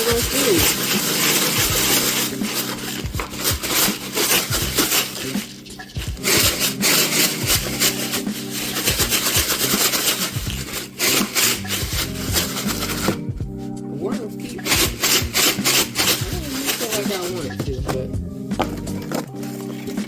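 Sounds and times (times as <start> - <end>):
plastic packaging rustling: 0.0 - 13.7, 14.4 - 20.0.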